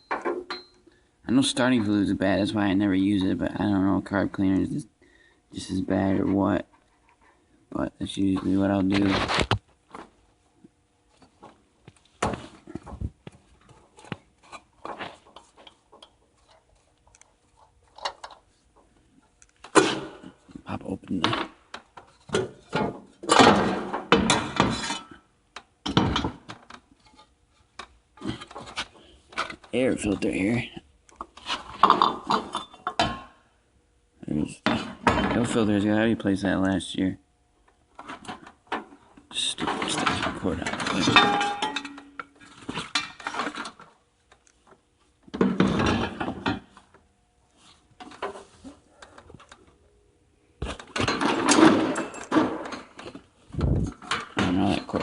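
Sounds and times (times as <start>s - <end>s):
plastic cover clattering and rattling: 39.6s - 44.0s, 45.3s - 46.8s, 50.6s - 55.0s.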